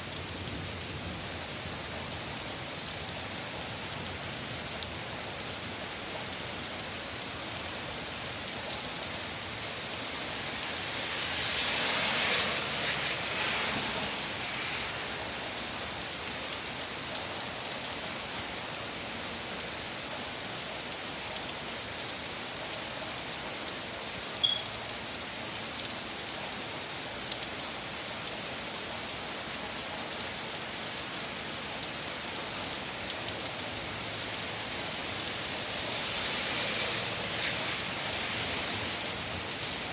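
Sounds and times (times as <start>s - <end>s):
heavy rain hissing: 0.2s - 39.9s
short high chirp: 24.4s - 24.7s.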